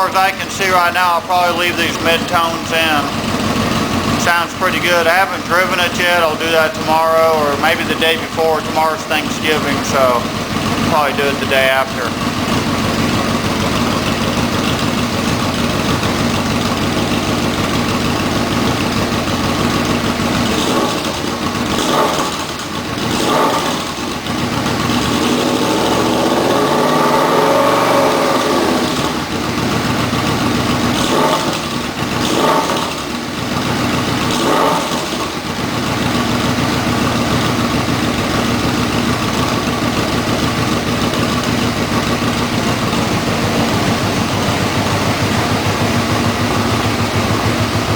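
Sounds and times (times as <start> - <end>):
motorcycle engine idling and revving: 0.0 - 47.9.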